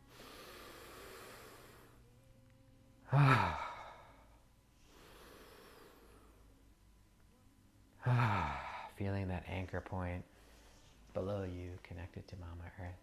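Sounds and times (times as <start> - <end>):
person breathing: 0.0 - 2.1, 3.1 - 6.6, 8.0 - 9.0, 10.3 - 11.1
person sighing: 3.1 - 4.2, 8.0 - 8.9.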